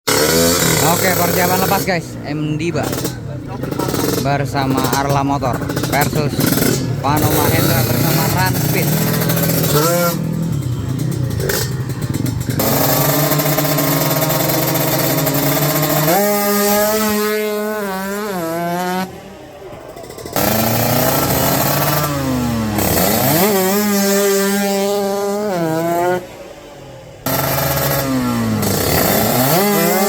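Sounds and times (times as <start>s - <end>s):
motorcycle engines accelerating hard: 0.1s - 30.0s.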